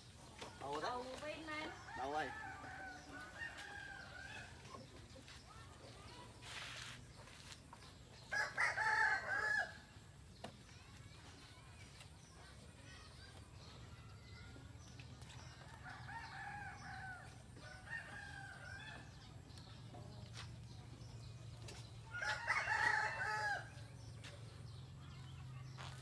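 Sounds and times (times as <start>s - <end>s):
rooster crowing: 22.2s - 23.7s.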